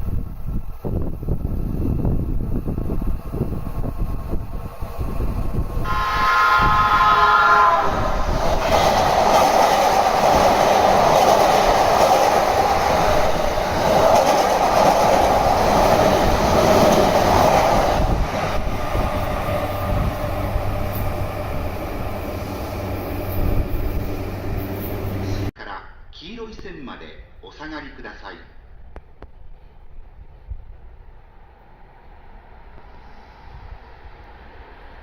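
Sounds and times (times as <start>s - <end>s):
train wheels and motors rushing: 0.0s - 25.5s
train horn: 5.8s - 8.3s.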